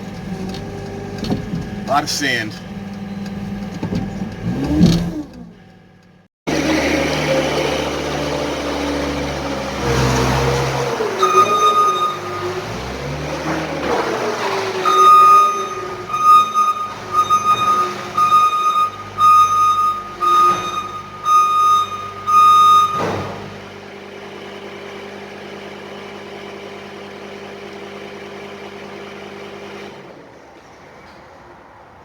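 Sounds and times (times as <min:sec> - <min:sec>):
diesel engine running: 0:00.0 - 0:30.3
vehicle backup alarm beeping: 0:10.7 - 0:13.3, 0:14.7 - 0:23.6.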